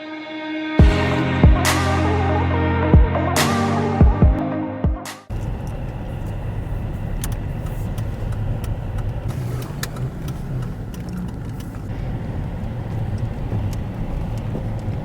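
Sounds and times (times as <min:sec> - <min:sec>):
car engine and road rumble: 0:05.3 - 0:15.0.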